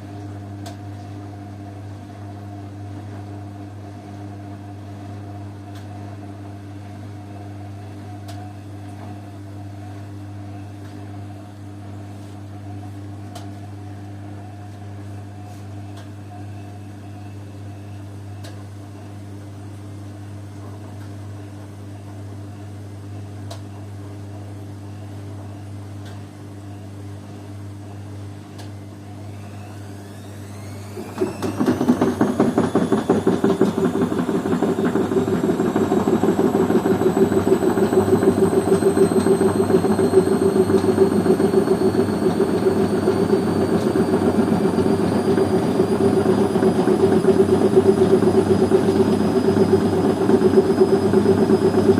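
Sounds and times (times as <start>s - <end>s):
washing machine humming: 0.0s - 51.9s
washing machine drum spinning: 30.0s - 51.9s.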